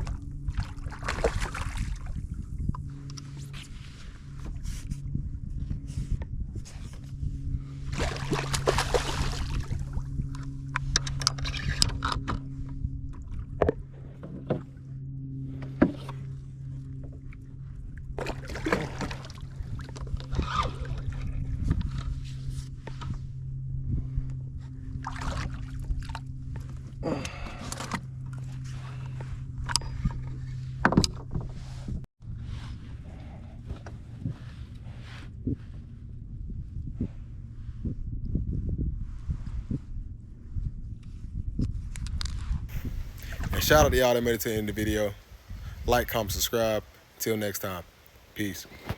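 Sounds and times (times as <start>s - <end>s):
water splashing around kayak: 0.0s - 4.9s, 7.7s - 23.4s, 24.6s - 32.0s, 42.7s - 48.9s
steady low hum: 0.0s - 48.9s
knocks and clicks on boat: 29.1s - 31.6s.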